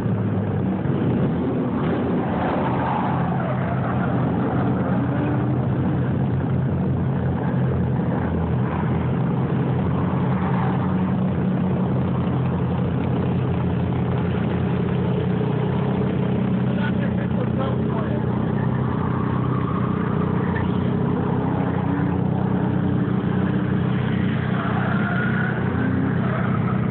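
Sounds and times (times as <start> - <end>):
car engines idling: 0.0 - 26.9.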